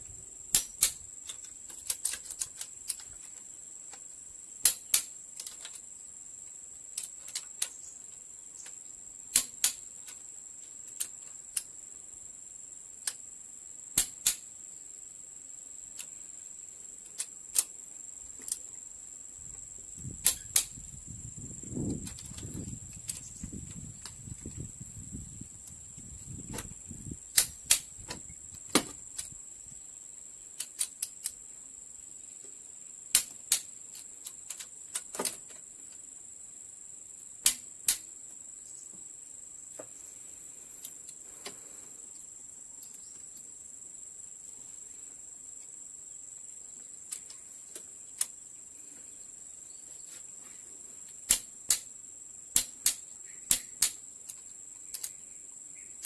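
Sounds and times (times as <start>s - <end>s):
steady high-pitched hiss: 0.0s - 56.0s
clicks of metal engine parts: 52.6s - 55.2s.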